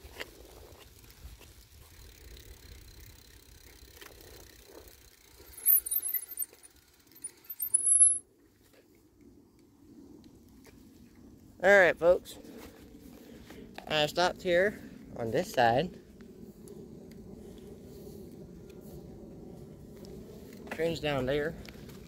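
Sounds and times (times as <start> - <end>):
bicycle rattling: 0.0 - 8.2
bicycle brakes squealing: 5.4 - 8.2.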